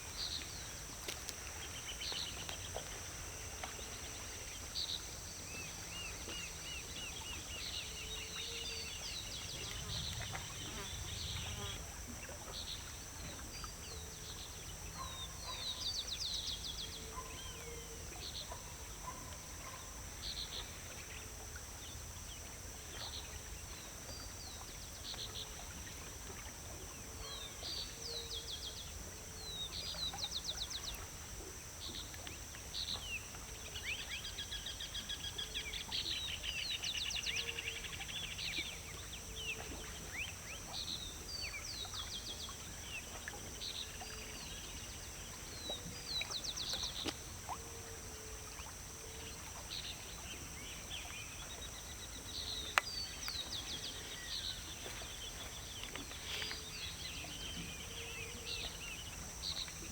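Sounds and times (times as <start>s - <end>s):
songbirds chirping and trilling: 49.8s - 59.7s.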